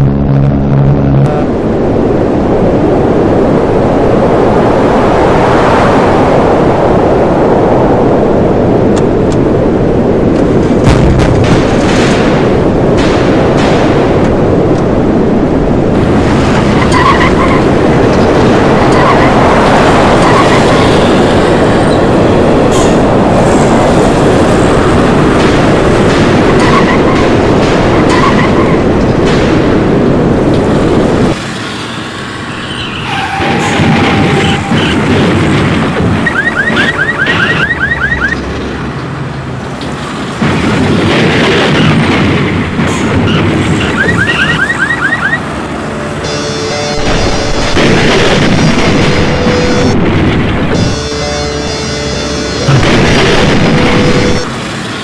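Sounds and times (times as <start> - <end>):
tornado wind roar: 0.0 - 55.0
car alarm chirping: 36.2 - 38.4, 43.9 - 45.4.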